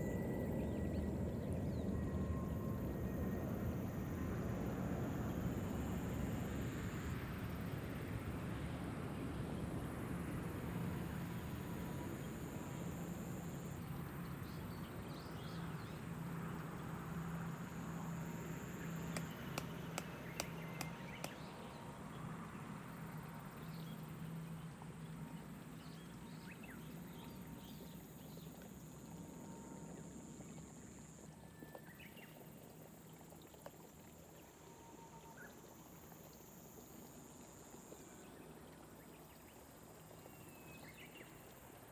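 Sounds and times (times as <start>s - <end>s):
sharp clicks: 19.1s - 21.4s.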